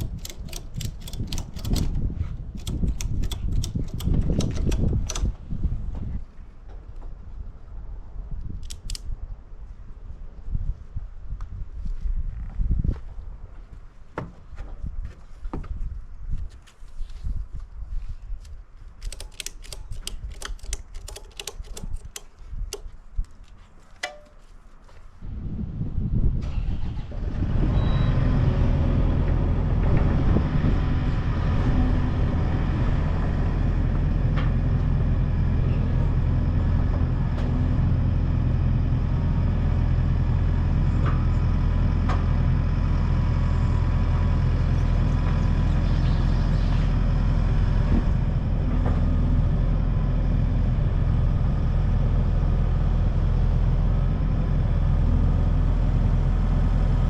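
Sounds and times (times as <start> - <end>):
sharp clicks: 0.0 - 5.4, 8.5 - 9.1, 19.0 - 24.3
engine starting and running: 0.0 - 6.0, 26.3 - 57.0.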